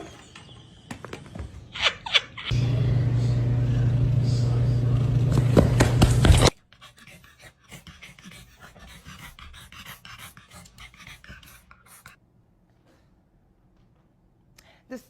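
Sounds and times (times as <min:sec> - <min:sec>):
dog panting: 0:06.4 - 0:12.2.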